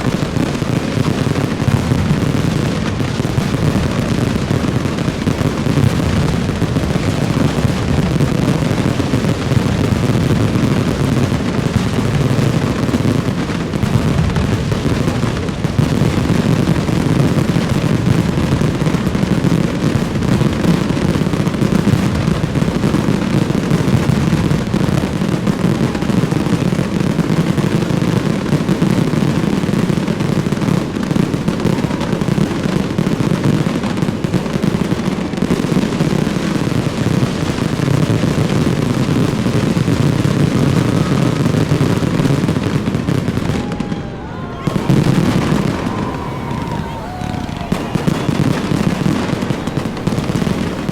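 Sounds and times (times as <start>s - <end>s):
fireworks bursts and crackles: 0.0s - 50.9s.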